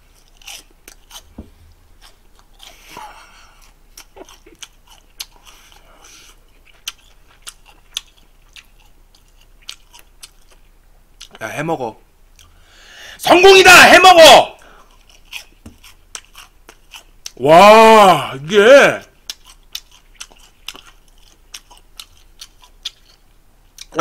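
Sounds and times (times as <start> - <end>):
person chewing crunchy food: 0.0 - 11.4, 14.6 - 17.4, 19.1 - 24.0.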